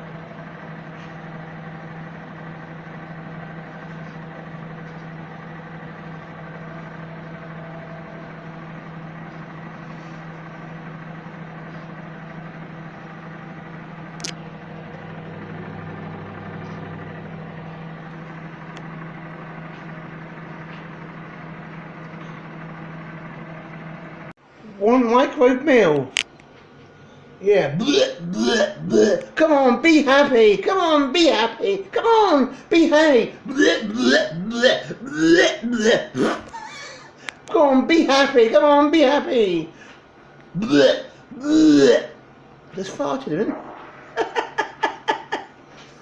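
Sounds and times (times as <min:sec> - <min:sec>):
microwave oven humming: 0:00.0 - 0:46.0
sharp click: 0:14.2 - 0:14.4.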